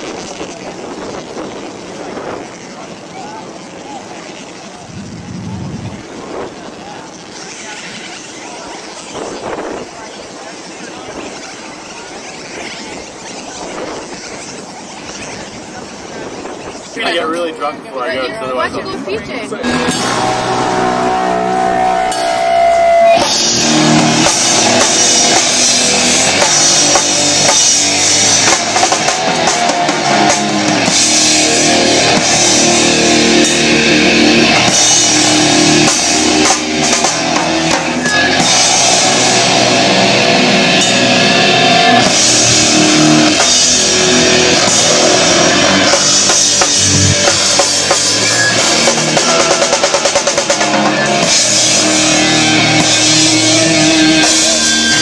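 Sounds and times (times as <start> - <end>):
rock band playing live: 19.6 - 55.0.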